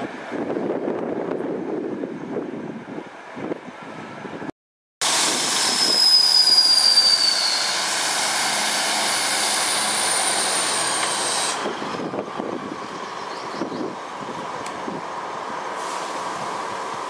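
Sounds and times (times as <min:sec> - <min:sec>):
train wheels squealing: 0:05.2 - 0:11.8.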